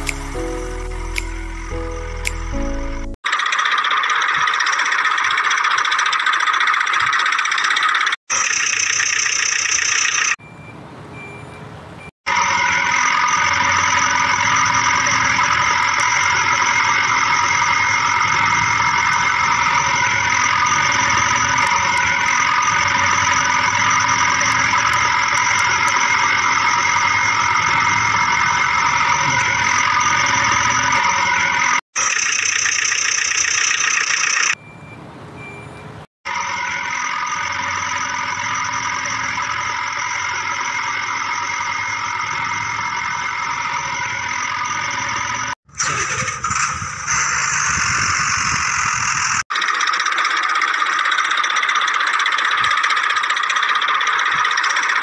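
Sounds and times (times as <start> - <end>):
brighter sound: 0.0 - 3.2
engine drone: 0.0 - 11.4, 12.0 - 55.0
high whining tones: 12.3 - 34.6, 36.3 - 55.0.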